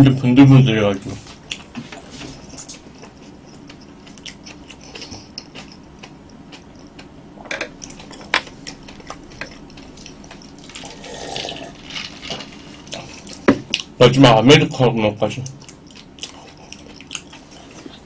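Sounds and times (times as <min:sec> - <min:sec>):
chewing with wet mouth sounds: 0:01.3 - 0:14.0, 0:15.2 - 0:18.0
person drinking from a glass: 0:10.5 - 0:13.4.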